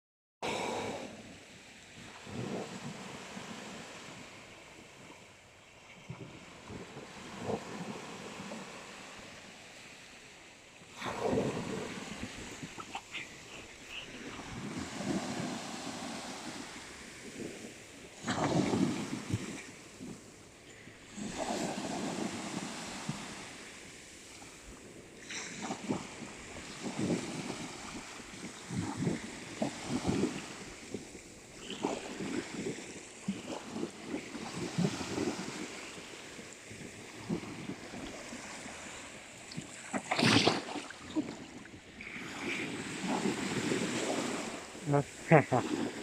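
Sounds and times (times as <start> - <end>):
sea waves washing onto beach: 0.4 - 46.0
wind buffeting microphone: 25.6 - 46.0.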